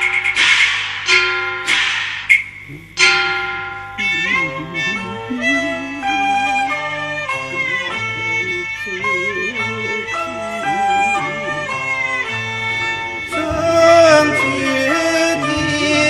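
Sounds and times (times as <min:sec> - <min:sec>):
ensemble led by bowed fiddle: 0:04.2 - 0:16.0.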